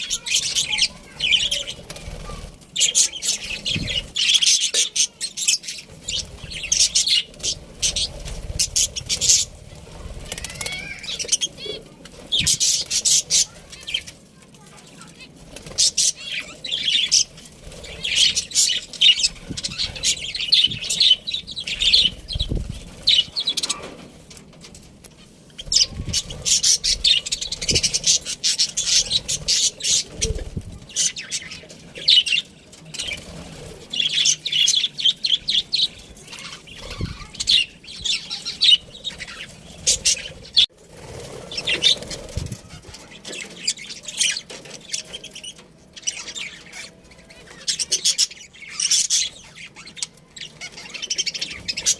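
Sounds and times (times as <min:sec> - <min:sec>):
budgerigars chirping: 0:00.0 - 0:14.1, 0:15.8 - 0:24.0, 0:25.6 - 0:33.3, 0:34.0 - 0:40.7.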